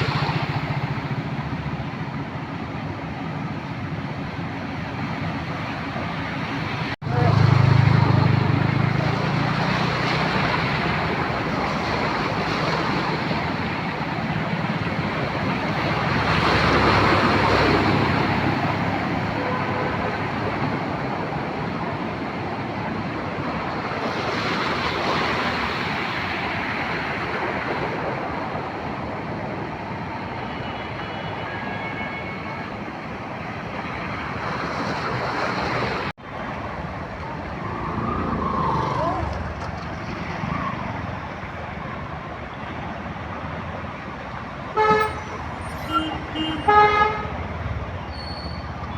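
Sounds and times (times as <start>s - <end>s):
vehicles passing: 0.0s - 48.9s.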